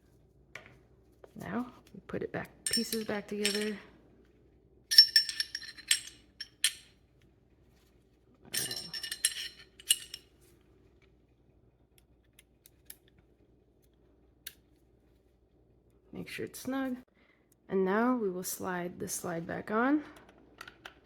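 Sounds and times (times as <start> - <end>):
metal parts clinking and rattling: 2.7 - 3.8, 4.9 - 7.0, 8.6 - 10.3.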